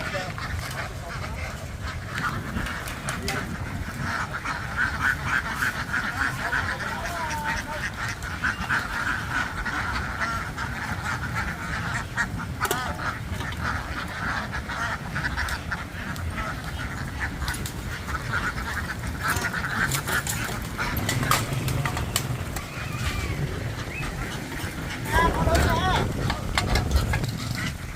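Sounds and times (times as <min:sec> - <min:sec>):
ducks quacking: 0:00.0 - 0:27.9
low rumble: 0:16.0 - 0:27.9.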